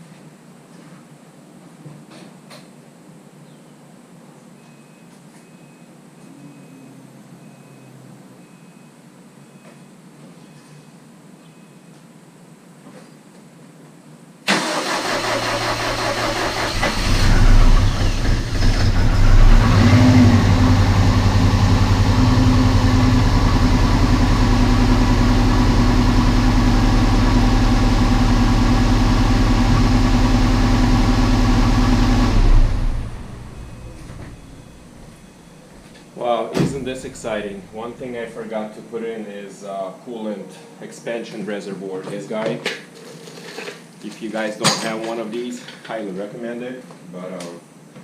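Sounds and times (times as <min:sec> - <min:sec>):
car engine cranking and idling roughly: 0:14.5 - 0:35.4, 0:36.6 - 0:38.2.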